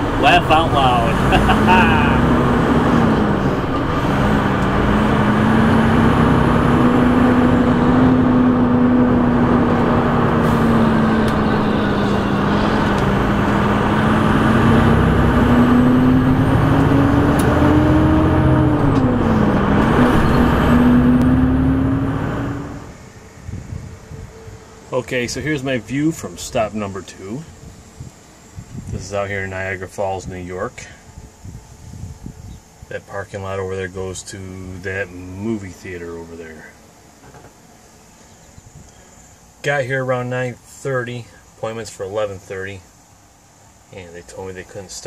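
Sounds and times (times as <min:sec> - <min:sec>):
truck diesel engine running: 0:00.0 - 0:23.4
road noise: 0:00.0 - 0:45.0.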